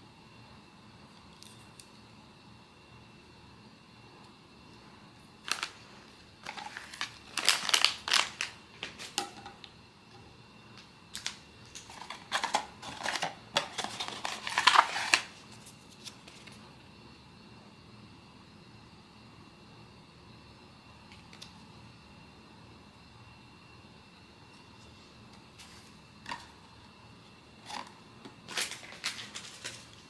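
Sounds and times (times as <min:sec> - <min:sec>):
packaging rustling and crinkling: 0:05.4 - 0:09.3, 0:11.1 - 0:16.6, 0:27.6 - 0:30.0.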